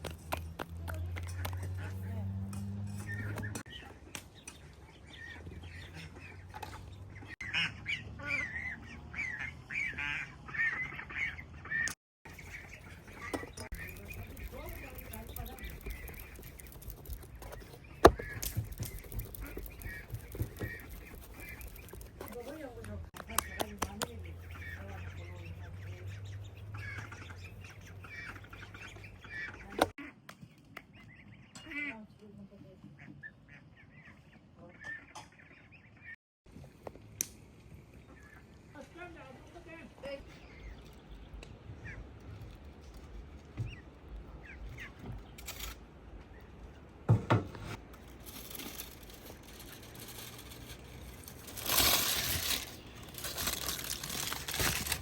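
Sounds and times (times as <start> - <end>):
ducks quacking: 5.1 - 22.6, 23.2 - 30.2.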